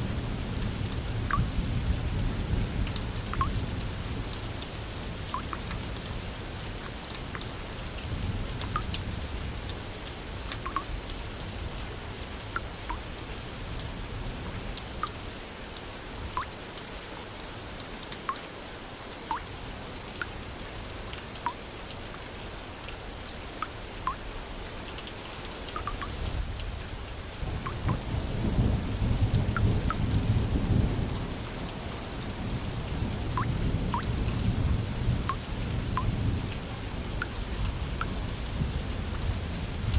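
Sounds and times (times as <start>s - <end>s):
low rumble of thunder: 0.0s - 5.3s, 27.3s - 37.0s, 37.7s - 39.9s
steady rain: 0.0s - 39.9s.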